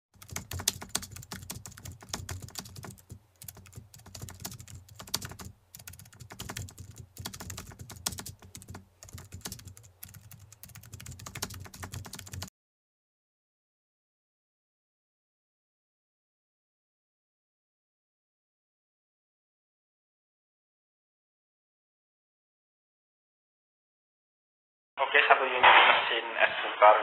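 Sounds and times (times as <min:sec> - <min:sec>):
rapid irregular clicking: 0:00.2 - 0:12.5.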